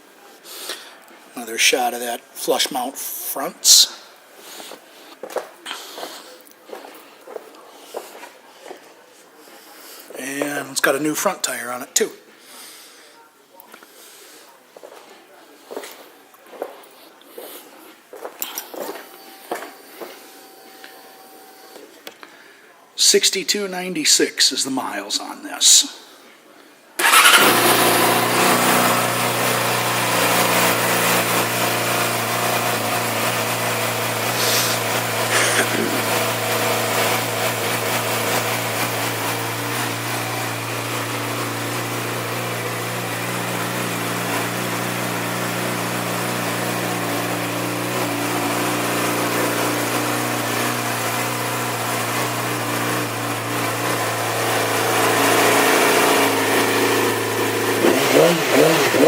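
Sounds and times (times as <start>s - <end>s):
motorcycle engine idling: 27.0s - 59.0s.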